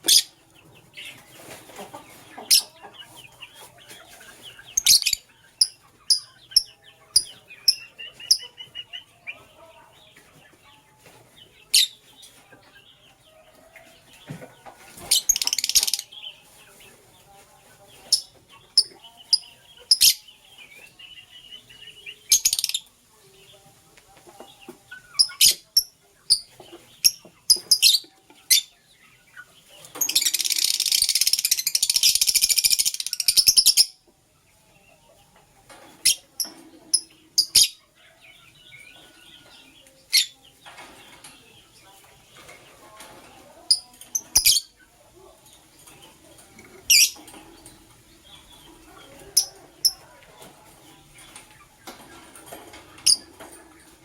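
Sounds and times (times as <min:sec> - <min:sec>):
lovebirds chirping: 0:00.0 - 0:54.0
rapid bird chattering: 0:04.7 - 0:08.5, 0:15.1 - 0:16.1, 0:30.0 - 0:33.9, 0:46.9 - 0:47.2.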